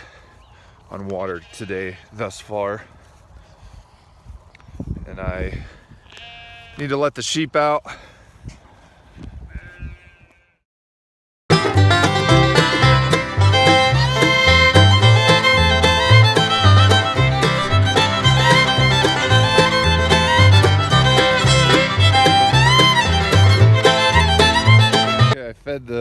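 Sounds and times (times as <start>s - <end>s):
bluegrass fiddle music: 11.5s - 25.4s.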